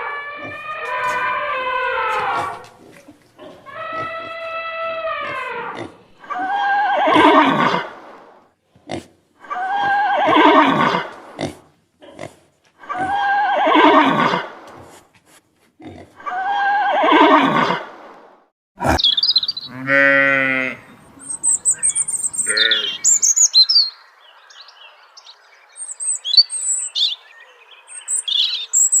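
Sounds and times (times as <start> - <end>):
loud drawn-out animal calls: 0.0 - 8.3, 8.9 - 14.7, 16.1 - 18.1, 18.8 - 24.0
high bird chirps: 19.0 - 19.8, 21.1 - 29.0.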